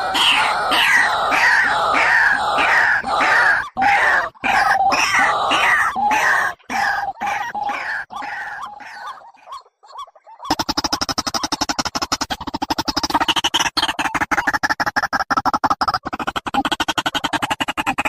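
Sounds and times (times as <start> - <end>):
recorded bird calls: 0.0 - 18.0
fast even chattering: 10.5 - 18.0.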